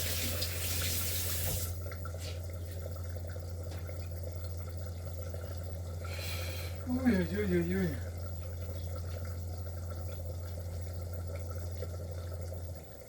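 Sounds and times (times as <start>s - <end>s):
tap running into a sink: 0.0s - 2.4s, 3.6s - 4.0s
steady low hum: 1.6s - 13.0s.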